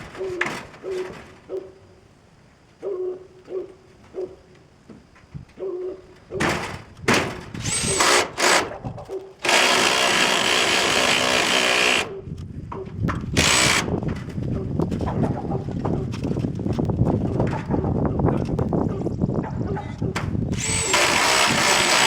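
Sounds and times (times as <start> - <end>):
screw gun motor whine: 7.6 - 8.6, 20.5 - 22.0.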